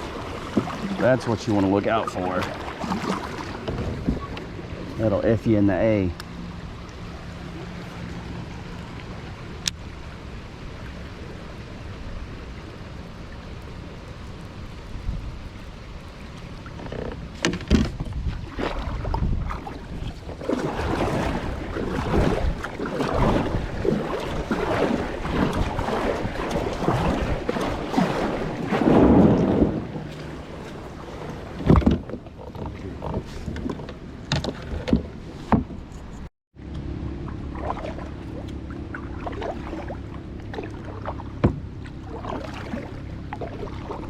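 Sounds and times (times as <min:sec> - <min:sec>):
creek water flowing: 0:00.0 - 0:17.6, 0:18.3 - 0:31.8
wind buffeting microphone: 0:13.6 - 0:16.6, 0:17.7 - 0:33.8.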